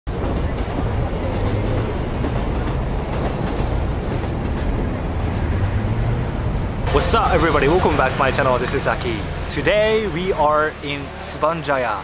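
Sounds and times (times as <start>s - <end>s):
light-rail train rumbling: 0.1s - 12.0s
road traffic: 0.1s - 12.0s.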